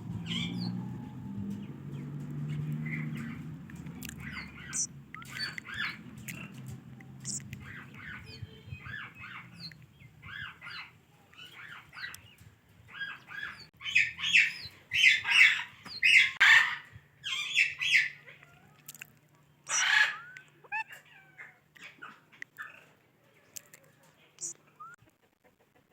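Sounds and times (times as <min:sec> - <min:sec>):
parakeet chattering and calling: 0:02.4 - 0:18.5, 0:19.7 - 0:22.8
harsh parakeet squawk: 0:04.2 - 0:06.0, 0:12.9 - 0:18.2, 0:19.7 - 0:22.2.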